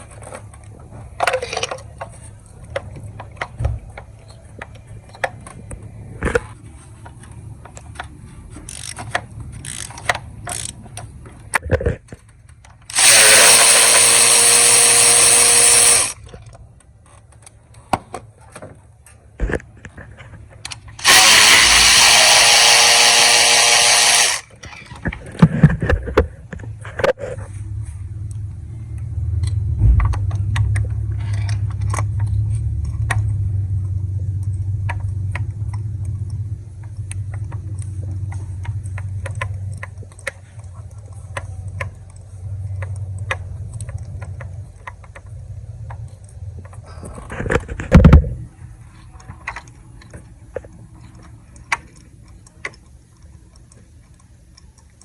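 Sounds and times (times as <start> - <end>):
metallic clicks of hand tools: 8.0 - 17.6.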